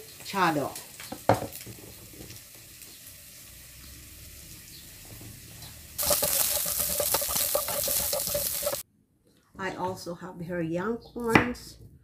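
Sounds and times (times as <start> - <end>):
pepper sizzling in oil: 0.0 - 8.8.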